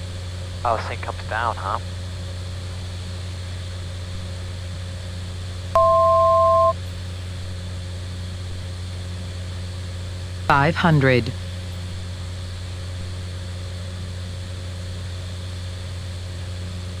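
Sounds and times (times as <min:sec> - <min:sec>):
turboprop cabin drone: 0:00.0 - 0:17.0
two-note electronic alert tone: 0:05.8 - 0:06.7.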